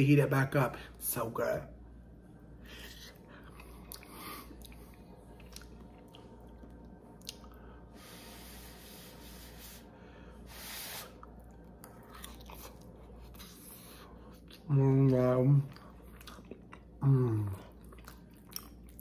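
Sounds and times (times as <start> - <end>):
person chewing food: 2.6 - 7.9, 11.2 - 19.0.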